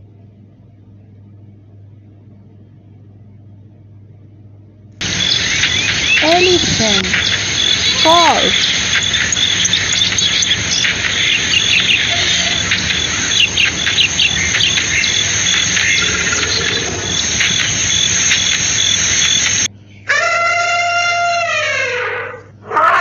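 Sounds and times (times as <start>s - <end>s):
insects chirping: 5.0s - 19.7s
short bird calls: 5.0s - 21.4s.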